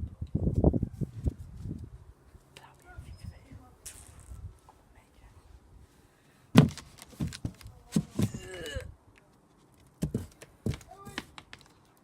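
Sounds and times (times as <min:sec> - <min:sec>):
knocks and thumps: 0:06.6 - 0:08.4, 0:10.0 - 0:11.3.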